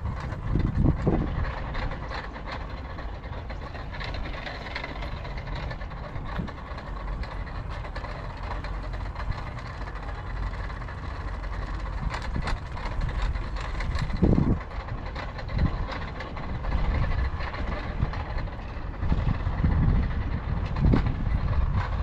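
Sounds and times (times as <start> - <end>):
wind on microphone: 0.0 - 9.9, 10.5 - 22.0.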